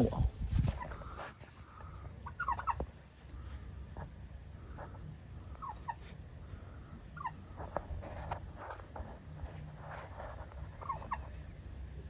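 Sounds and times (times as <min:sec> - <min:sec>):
turkey calling: 0:01.8 - 0:03.0, 0:05.4 - 0:07.5, 0:10.6 - 0:11.4.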